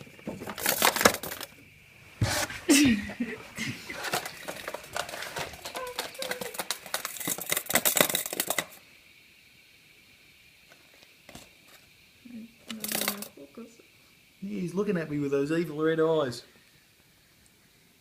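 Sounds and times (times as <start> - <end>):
cicada wings clattering: 3.2 - 9.7, 10.6 - 16.4.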